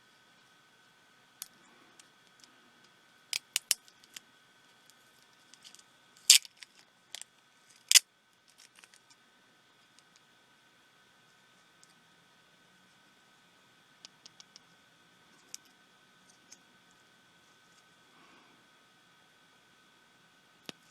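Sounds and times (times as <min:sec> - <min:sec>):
plastic parts snapping: 0:03.4 - 0:04.2, 0:05.6 - 0:06.8
small plastic parts clicking: 0:03.4 - 0:04.2, 0:05.5 - 0:09.2.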